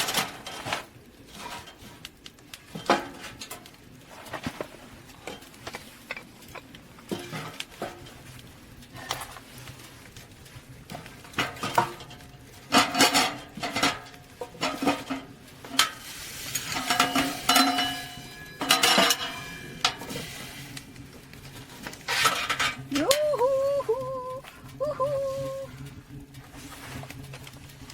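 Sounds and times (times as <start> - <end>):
metal pots and utensils clinking: 5.2 - 8.2, 10.9 - 20.4, 22.0 - 23.3.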